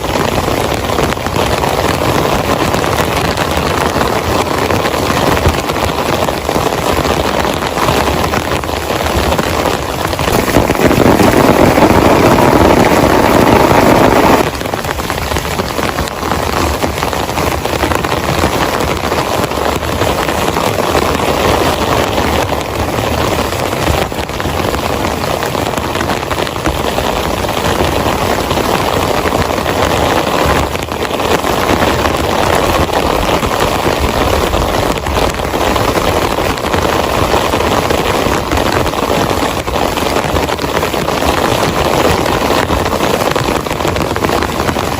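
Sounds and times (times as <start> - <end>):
heavy rain: 0.0 - 44.9.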